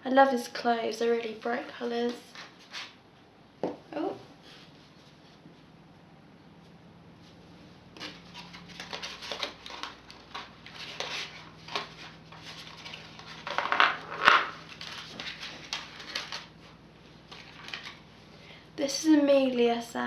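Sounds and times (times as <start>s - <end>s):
hands rustling toy packaging: 8.0s - 18.0s.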